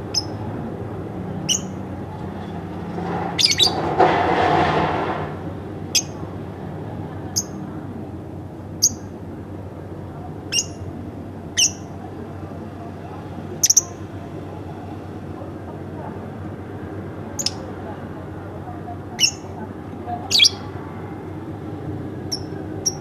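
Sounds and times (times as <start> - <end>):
lovebird chirping: 0.1 - 0.4, 1.5 - 1.8, 3.4 - 3.8, 8.8 - 9.1, 10.5 - 10.8, 11.6 - 11.9, 13.6 - 14.0, 17.4 - 17.6, 19.2 - 19.5, 20.3 - 20.7, 22.3 - 23.0.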